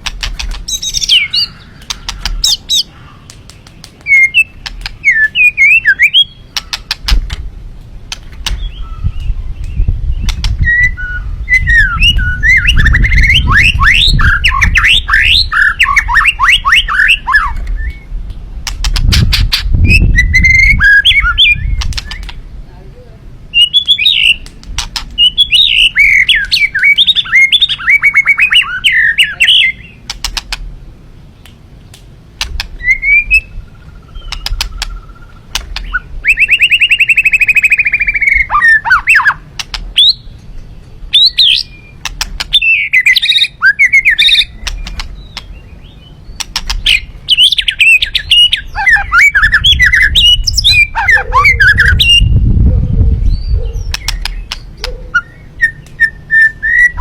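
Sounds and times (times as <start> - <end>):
songbird singing: 0.0 - 57.0
low rumble: 49.5 - 54.0.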